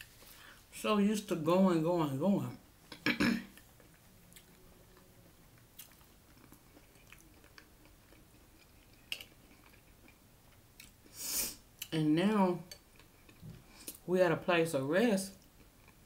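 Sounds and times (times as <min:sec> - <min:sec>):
soft chewing: 0:02.9 - 0:11.2, 0:12.6 - 0:14.1, 0:15.4 - 0:16.0.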